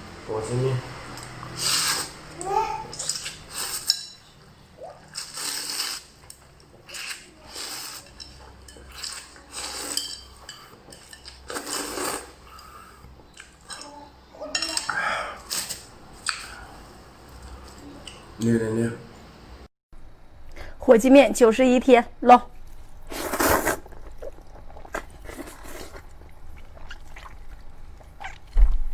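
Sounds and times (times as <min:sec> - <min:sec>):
utensils clinking against bowl: 0:02.9 - 0:04.3, 0:07.9 - 0:11.7, 0:14.5 - 0:15.0
noodles slurped and chewed: 0:04.9 - 0:13.6, 0:22.7 - 0:28.6.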